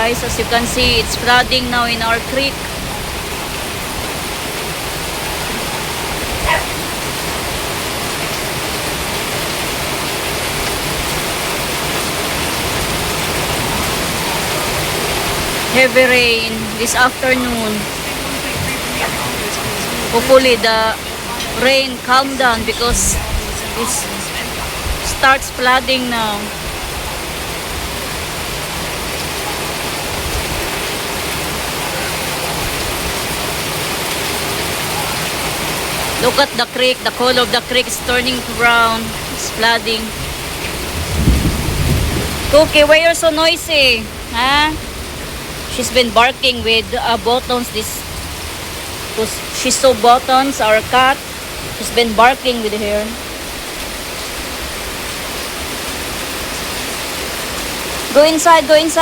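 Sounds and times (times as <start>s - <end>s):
flooding creek rushing: 0.0s - 59.0s
heavy rain: 0.0s - 59.0s
dog barking: 5.2s - 7.0s, 18.4s - 20.1s.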